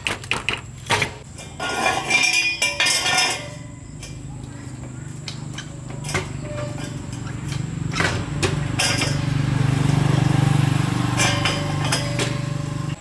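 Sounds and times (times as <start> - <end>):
small engine running: 4.2 - 13.0.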